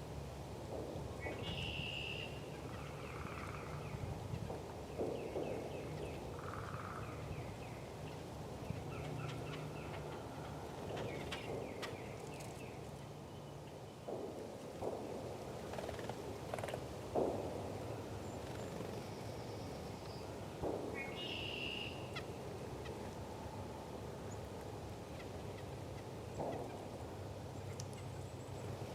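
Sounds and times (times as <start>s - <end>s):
outdoor background noise: 0.0s - 28.9s
small birds chirping: 1.2s - 14.3s, 18.2s - 23.1s.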